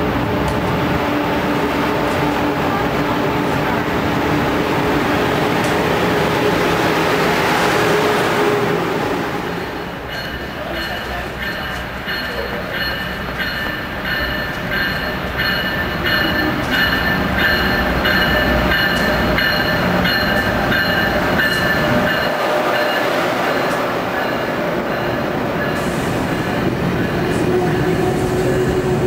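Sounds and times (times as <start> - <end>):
train rumbling: 0.0 - 29.0
high ringing bell: 9.6 - 25.8.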